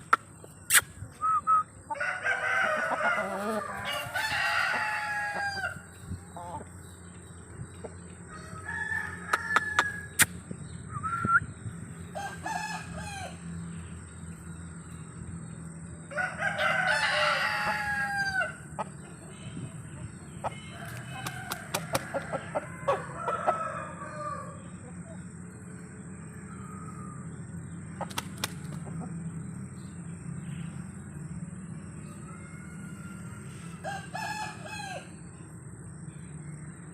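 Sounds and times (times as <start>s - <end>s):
chickens clucking: 0.0s - 8.7s, 16.1s - 25.1s, 27.9s - 29.2s
steady low hum: 0.0s - 36.9s
rooster crowing: 1.8s - 6.6s, 8.2s - 10.2s, 12.1s - 13.4s, 16.0s - 18.7s, 20.2s - 24.8s, 26.2s - 27.8s, 32.0s - 35.3s
sharp clicks: 28.1s - 28.8s.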